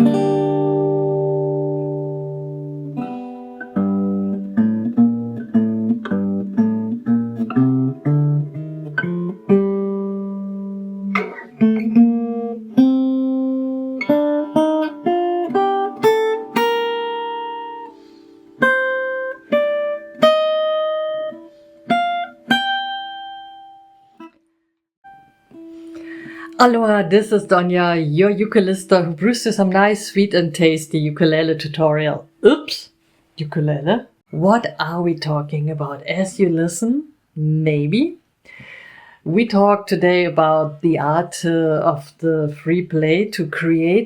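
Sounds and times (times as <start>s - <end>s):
ukulele plucked melody: 5.9s - 21.3s, 25.1s - 26.3s.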